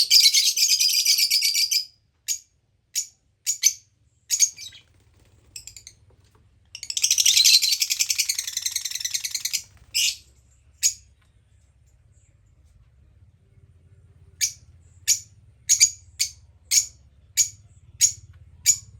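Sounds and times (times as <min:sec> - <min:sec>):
parrot chirps: 0:00.0 - 0:04.9, 0:06.8 - 0:11.1, 0:14.4 - 0:18.9
parrot chattering: 0:06.8 - 0:10.2.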